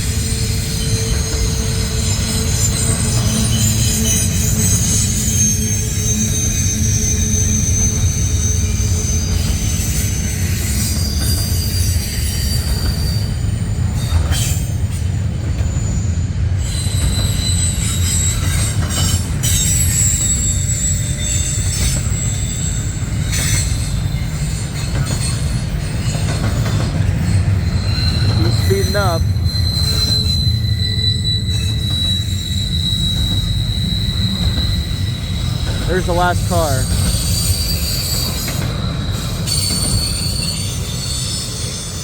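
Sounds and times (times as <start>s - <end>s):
high-pitched wheel squeal: 0.5s - 14.8s, 15.6s - 36.0s, 36.8s - 42.0s
wheels clanking over rails: 16.6s - 42.0s.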